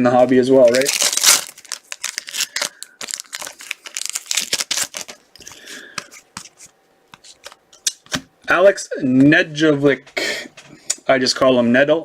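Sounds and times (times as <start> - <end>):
card pack wrapper tearing: 0.3 - 5.6
cards rustling and clicking: 0.6 - 8.2.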